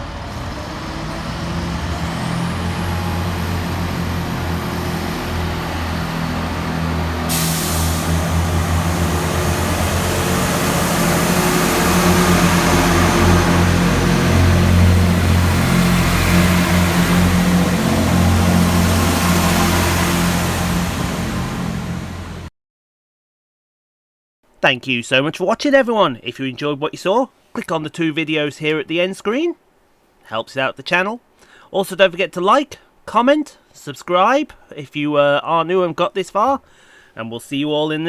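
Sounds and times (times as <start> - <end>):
train diesel engines throbbing: 0.0 - 22.5.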